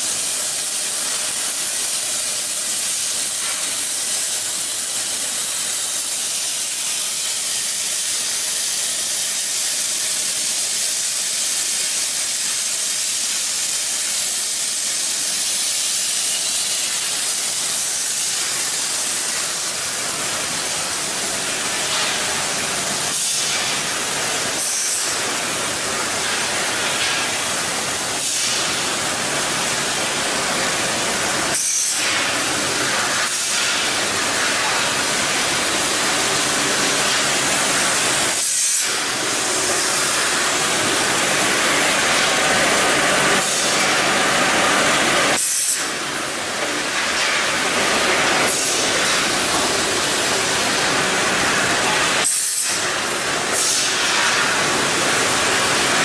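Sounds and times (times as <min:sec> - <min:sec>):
loud steady hiss: 0:00.0 - 0:56.0.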